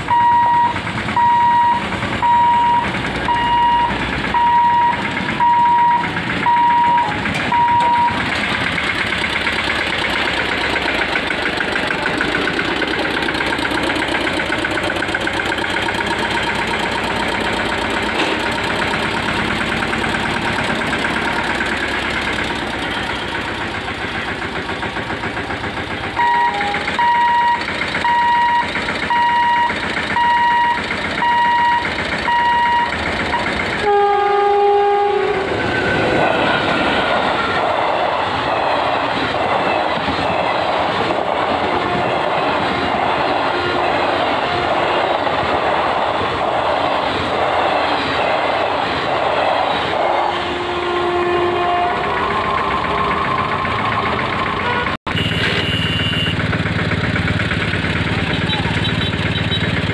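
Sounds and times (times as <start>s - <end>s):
tractor diesel engine running: 0.0s - 59.9s
train wheels clattering over rails: 0.0s - 59.9s
beeps: 0.1s - 8.3s, 26.2s - 33.5s
two-tone locomotive horn: 26.2s - 40.6s, 41.3s - 45.3s, 49.4s - 56.5s, 58.1s - 59.9s.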